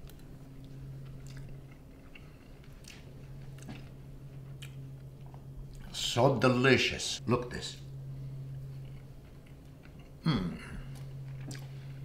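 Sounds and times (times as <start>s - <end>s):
man chewing: 0.0s - 5.9s, 8.7s - 10.2s, 10.8s - 12.0s
steady low hum: 0.0s - 12.0s.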